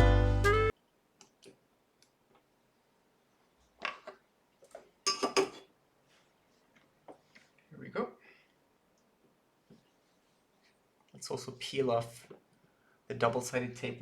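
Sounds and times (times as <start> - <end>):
background music: 0.0 - 0.7.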